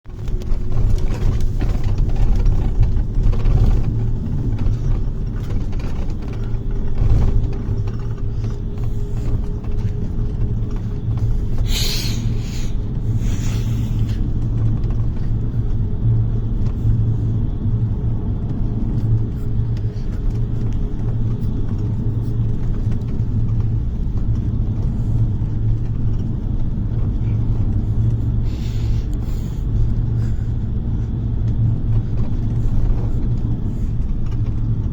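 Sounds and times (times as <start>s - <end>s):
bus engine and road rumble: 0.0s - 34.9s
short air hisses: 11.7s - 13.9s.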